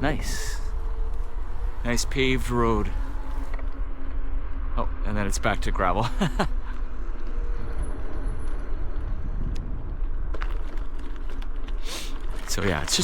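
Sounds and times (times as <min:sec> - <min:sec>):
wind rumble on microphone: 0:05.6 - 0:13.0
bicycle tyres rolling on gravel: 0:07.5 - 0:13.0.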